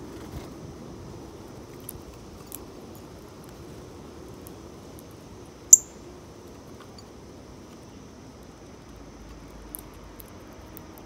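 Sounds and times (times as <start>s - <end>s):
small bird chip: 5.7s - 6.0s.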